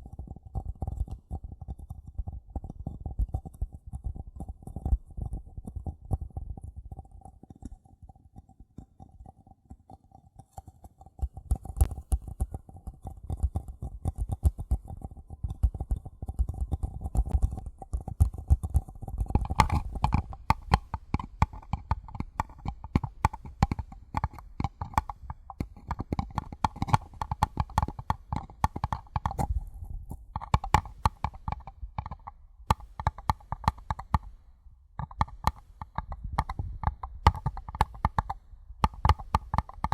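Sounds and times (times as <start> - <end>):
tapping on paper cups: 10.5 - 29.7, 30.4 - 39.9.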